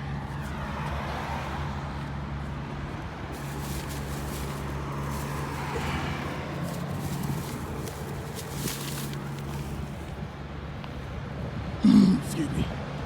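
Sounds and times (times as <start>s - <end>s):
vehicle engine humming: 0.0s - 11.5s
faint road noise: 0.0s - 13.0s.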